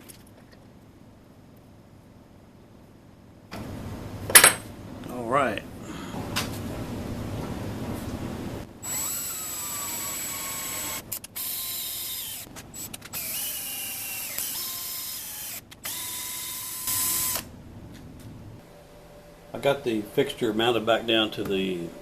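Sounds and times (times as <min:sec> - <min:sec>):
electric drill motor whining: 0:08.8 - 0:17.5.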